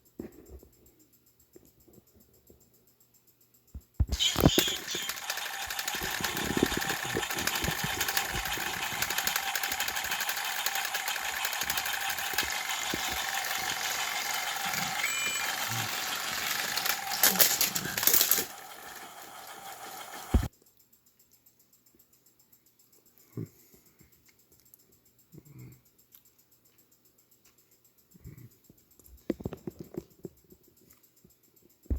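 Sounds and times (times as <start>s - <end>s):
toy train motor gear clatter: 4.1s - 20.5s.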